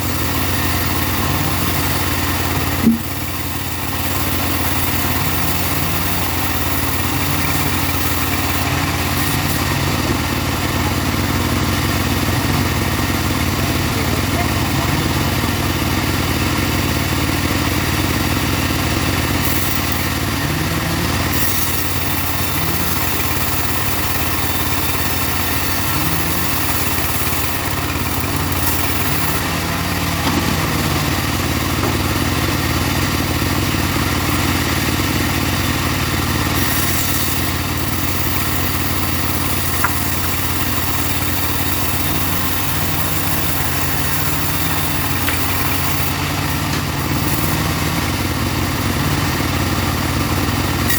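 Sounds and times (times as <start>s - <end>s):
sawmill engine running: 0.0s - 50.9s.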